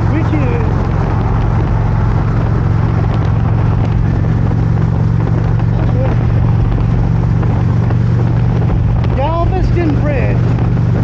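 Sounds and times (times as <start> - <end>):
road and wind noise: 0.0 - 11.0
vehicle engine drone: 0.0 - 11.0.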